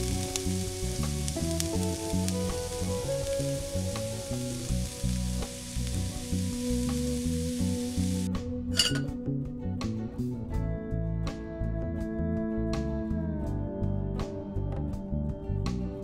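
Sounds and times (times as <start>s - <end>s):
spices sizzling in a pan: 0.0s - 9.1s
background music: 0.0s - 16.0s
spoon clicking on pan: 8.8s - 9.1s.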